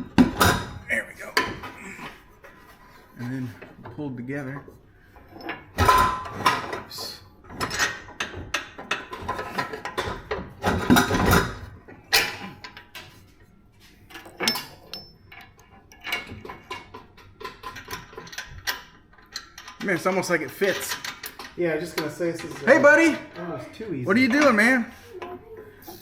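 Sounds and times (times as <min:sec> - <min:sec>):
metal exhaust pipes clanking: 0:14.1 - 0:26.0.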